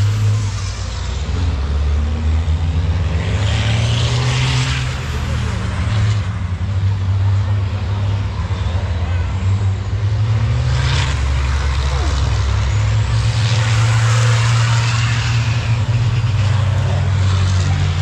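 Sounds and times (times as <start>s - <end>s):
diesel truck engines droning: 0.0s - 18.0s.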